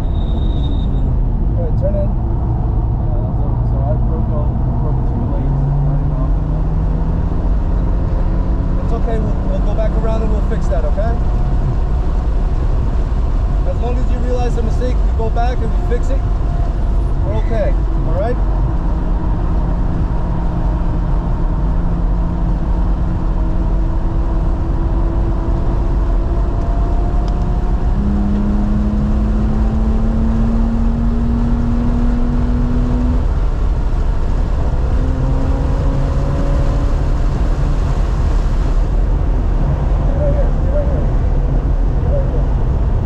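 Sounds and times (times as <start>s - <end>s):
road and wind rumble: 0.0s - 43.0s.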